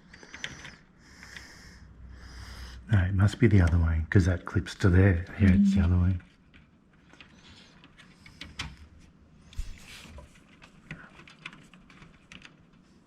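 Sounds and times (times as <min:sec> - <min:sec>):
light clicks and taps: 0:03.3 - 0:03.9.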